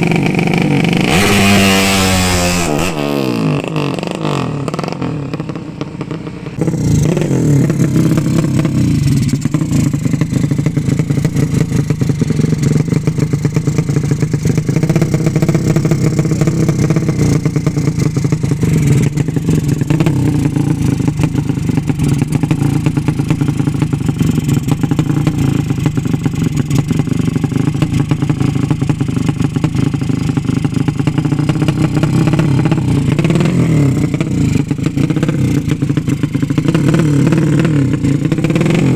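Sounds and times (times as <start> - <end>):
motorcycle engine running loud: 0.0 - 38.9.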